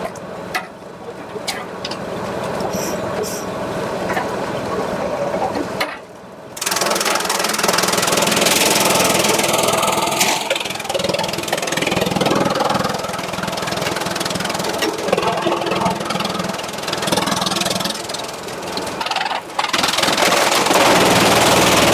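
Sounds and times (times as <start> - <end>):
sawmill machinery humming: 6.6 - 21.9.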